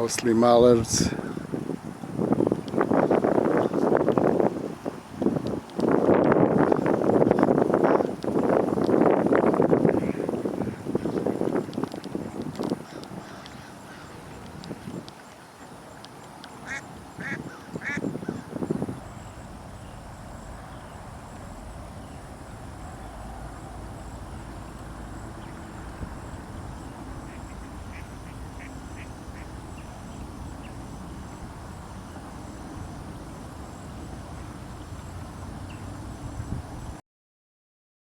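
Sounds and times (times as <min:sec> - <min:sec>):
ducks quacking: 0:16.6 - 0:18.1, 0:27.3 - 0:29.5.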